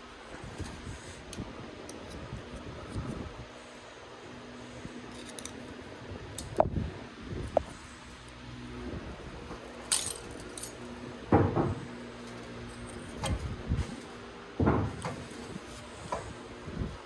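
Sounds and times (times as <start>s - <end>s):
steady low hum: 0.0s - 17.0s
metal tools clinking: 9.7s - 10.9s.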